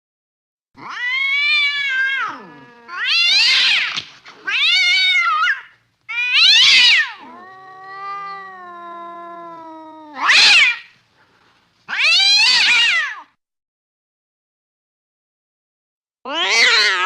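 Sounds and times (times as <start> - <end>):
cat meowing: 0.8 - 10.9, 11.9 - 13.3, 16.3 - 17.0
cat yowling: 0.8 - 10.9, 11.9 - 13.3, 16.3 - 17.0.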